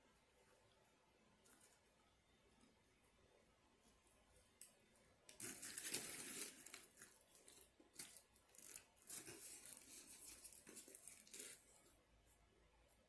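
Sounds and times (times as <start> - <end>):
paper packaging rustling and tearing: 5.4 - 11.7.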